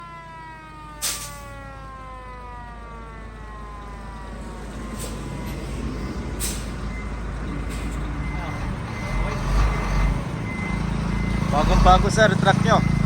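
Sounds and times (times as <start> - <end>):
fire truck siren winding down: 0.0 - 13.0
truck engine running: 4.4 - 13.0.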